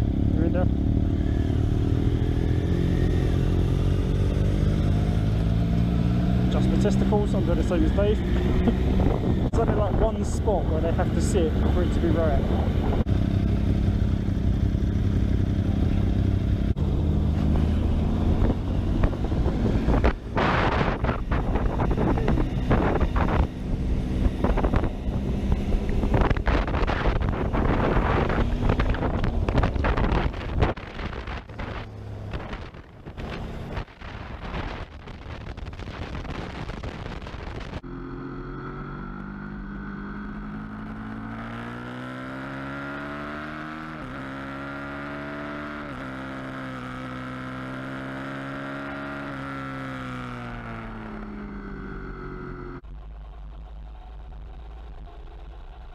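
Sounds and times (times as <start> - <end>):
motorcycle engine running: 0.0 - 55.9
wind rushing over microphone: 1.5 - 37.9.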